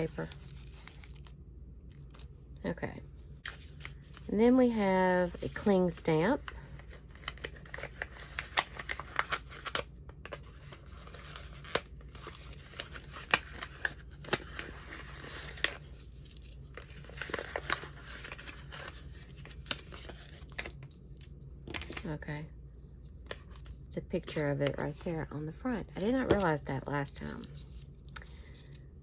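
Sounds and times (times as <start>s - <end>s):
packaging crinkling and tearing: 0.1s - 2.3s, 6.5s - 22.1s.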